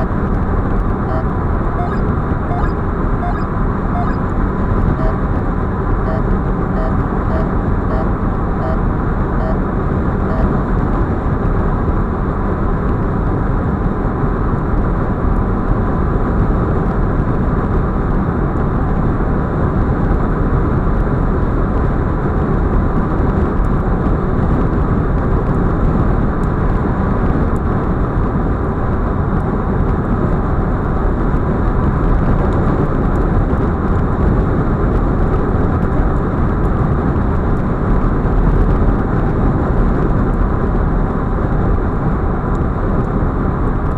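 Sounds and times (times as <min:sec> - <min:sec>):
car road and wind noise: 0:00.0 - 0:43.9.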